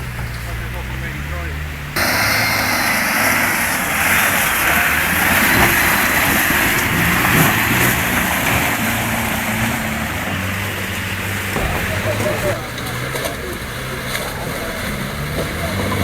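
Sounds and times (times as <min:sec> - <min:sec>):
engine running: 0:00.0 - 0:16.0
loud rushing noise: 0:02.0 - 0:12.7.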